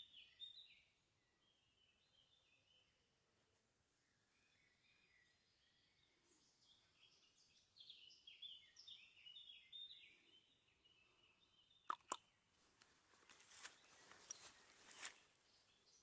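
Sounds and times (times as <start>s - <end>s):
songbird chirping: 0.0s - 16.0s
sharp clicks: 11.9s - 12.2s.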